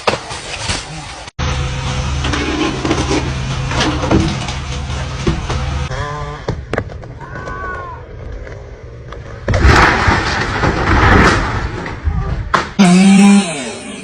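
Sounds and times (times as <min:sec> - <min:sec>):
low engine hum: 0:01.4 - 0:05.9.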